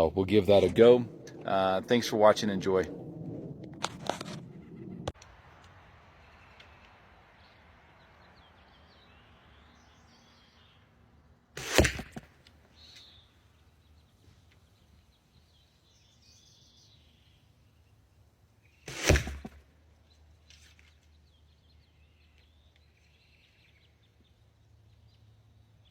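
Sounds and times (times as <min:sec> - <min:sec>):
arrow whooshing: 0:02.4 - 0:05.2, 0:11.6 - 0:12.3, 0:18.9 - 0:19.6
faint birdsong: 0:04.5 - 0:11.6, 0:12.3 - 0:19.0, 0:19.6 - 0:25.9.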